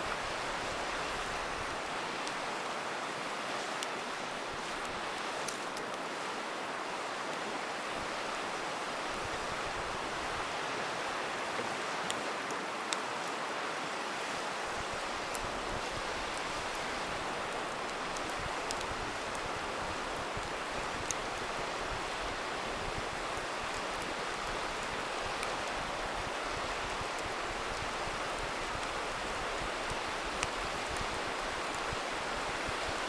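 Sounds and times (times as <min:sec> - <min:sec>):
campfire popping and crackling: 0:00.0 - 0:02.7, 0:03.6 - 0:06.1, 0:14.5 - 0:33.0
river rushing: 0:00.0 - 0:33.0.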